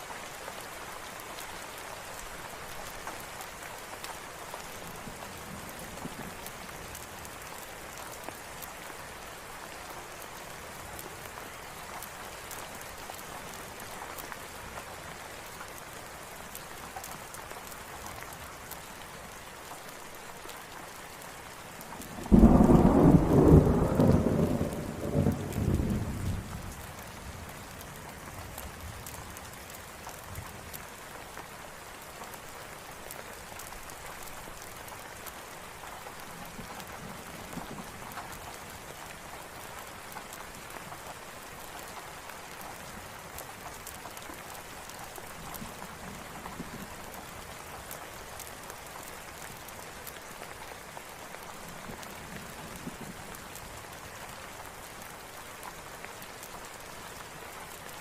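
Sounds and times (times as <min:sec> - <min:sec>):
steady rain: 0:00.0 - 0:58.0
thunder rumbling: 0:22.2 - 0:26.6.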